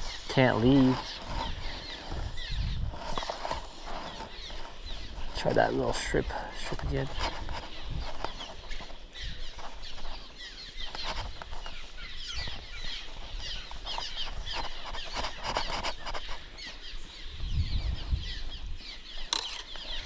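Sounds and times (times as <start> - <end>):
small birds chirping: 0.0 - 20.0
wind: 0.0 - 20.0.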